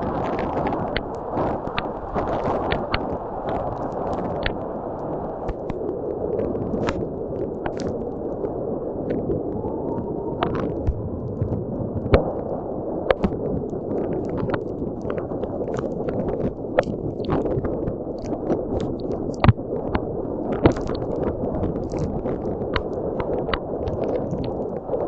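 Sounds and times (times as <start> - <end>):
strong wind rushing: 0.0 - 25.0
heavy rain tapping: 13.1 - 24.8.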